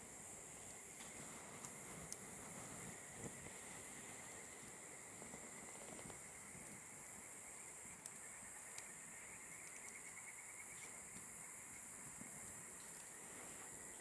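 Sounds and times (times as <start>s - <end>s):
campfire burning: 0.0s - 14.0s
steady high hiss: 0.0s - 14.0s
faint rapid chirping: 3.0s - 14.0s.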